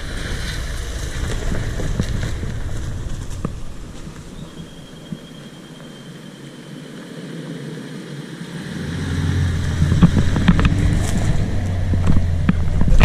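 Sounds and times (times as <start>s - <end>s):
vehicle engine driving uphill: 0.0s - 6.8s, 8.4s - 13.0s.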